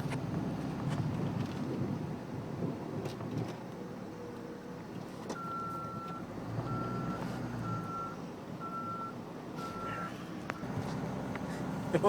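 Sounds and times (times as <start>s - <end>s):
truck engine droning: 3.8s - 12.0s
reversing alarm beeping: 5.4s - 10.7s.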